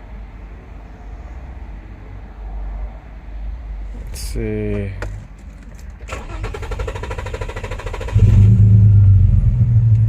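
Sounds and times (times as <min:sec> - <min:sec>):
car engine cranking and running rough: 0:05.1 - 0:10.0.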